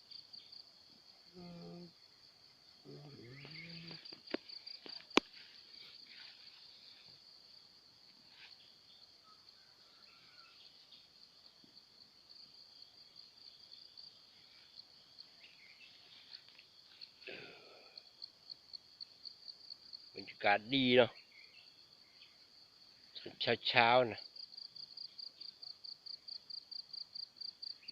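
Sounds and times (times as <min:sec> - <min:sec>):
crickets trilling: 0:00.0 - 0:27.9
faint bird chirps: 0:02.8 - 0:05.0, 0:08.3 - 0:11.2, 0:13.8 - 0:18.0, 0:20.4 - 0:22.5.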